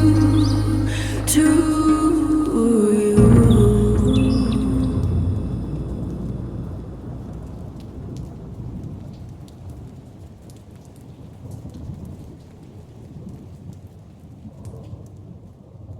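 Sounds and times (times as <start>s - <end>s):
rain falling: 0.0s - 15.3s
low rumble of thunder: 3.2s - 10.2s.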